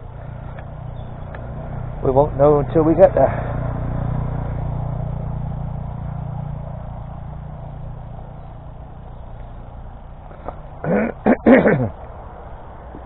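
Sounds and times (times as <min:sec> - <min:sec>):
road vehicle rumble passing: 0:00.0 - 0:13.0.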